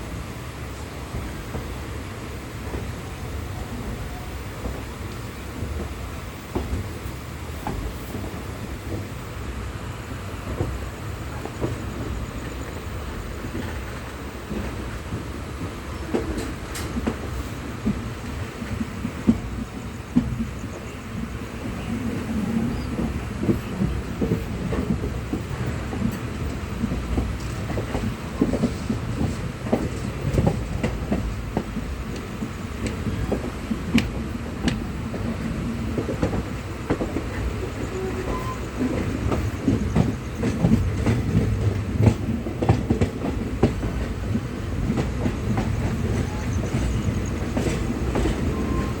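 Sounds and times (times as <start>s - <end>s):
train clanks and clicks: 0.0s - 49.0s
train rumbling on rails: 0.0s - 49.0s.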